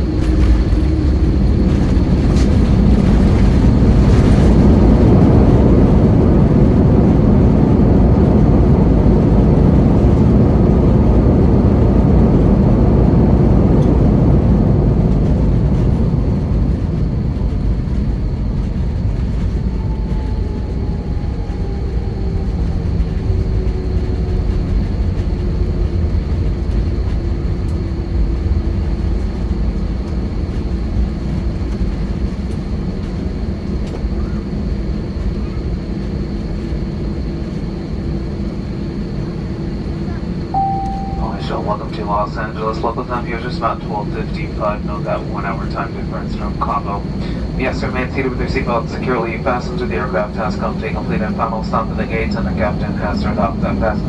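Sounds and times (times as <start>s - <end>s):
jet engine and airflow rush: 0.0s - 54.0s
low engine hum: 0.0s - 54.0s
faint falling whine: 40.6s - 54.0s.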